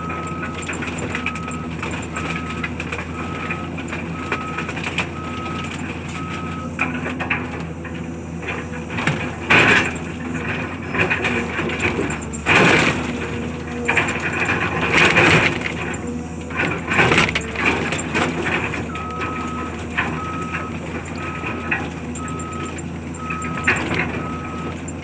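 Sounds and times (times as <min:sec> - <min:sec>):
reversing alarm beeping: 0:00.0 - 0:06.8, 0:17.3 - 0:25.0
diesel engine running: 0:00.0 - 0:25.0.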